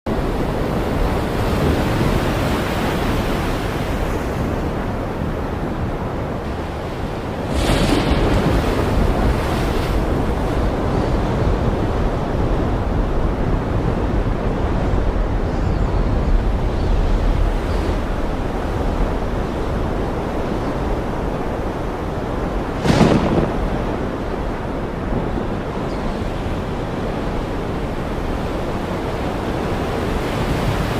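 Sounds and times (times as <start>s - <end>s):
rushing rain and water: 0.1s - 30.9s
wind buffeting microphone: 0.1s - 30.9s
storm roar: 21.8s - 25.9s.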